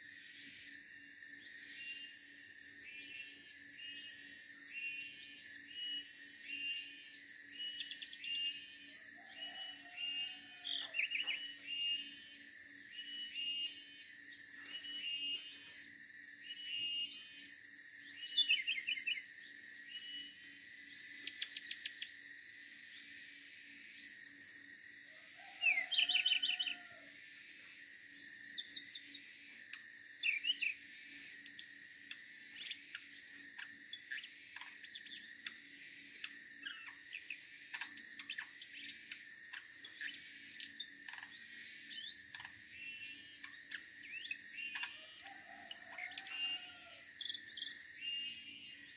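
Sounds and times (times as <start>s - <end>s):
bird singing high trills: 2.9s - 22.3s, 25.4s - 27.0s, 30.2s - 31.7s, 32.5s - 48.9s.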